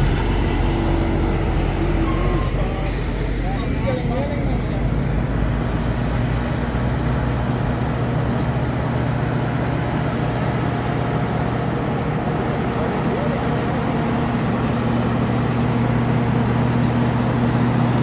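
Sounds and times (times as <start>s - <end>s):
truck engine humming: 0.0s - 18.0s.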